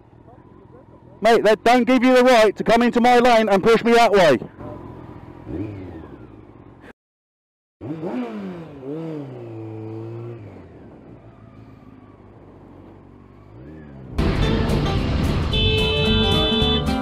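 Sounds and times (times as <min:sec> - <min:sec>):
motorcycle engine accelerating: 0:04.4 - 0:06.9, 0:07.8 - 0:17.0
music: 0:14.2 - 0:17.0.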